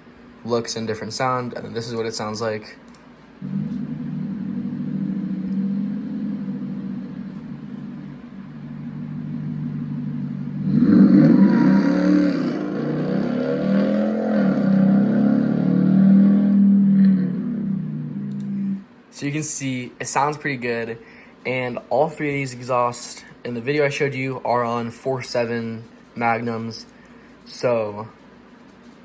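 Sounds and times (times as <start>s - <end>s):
car engine idling and revving: 3.5s - 18.8s.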